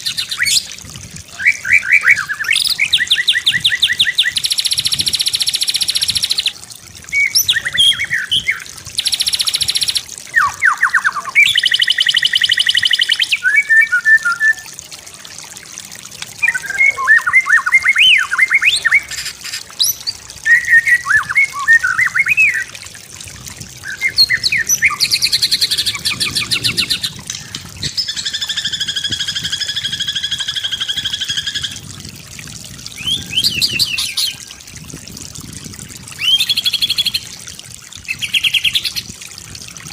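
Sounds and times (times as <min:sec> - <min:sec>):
songbird whistling and rattling: 0:07.1 - 0:14.6, 0:23.8 - 0:31.8, 0:33.0 - 0:34.4.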